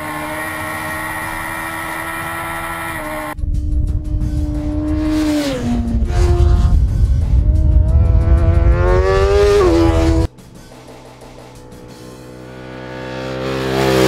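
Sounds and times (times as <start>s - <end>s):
motorcycle engine revving: 0.0s - 10.3s, 11.0s - 14.0s
wind rumble: 3.3s - 10.3s.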